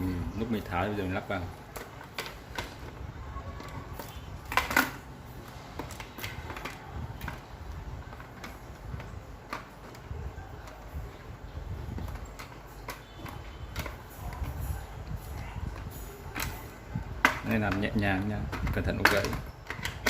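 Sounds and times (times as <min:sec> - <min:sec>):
plastic clicks and knocks: 0:01.4 - 0:05.1, 0:11.8 - 0:14.7, 0:15.6 - 0:20.0.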